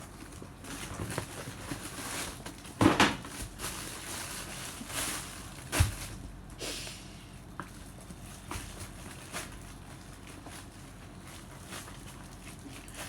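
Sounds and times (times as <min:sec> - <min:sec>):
packaging rustling: 0:00.0 - 0:06.2.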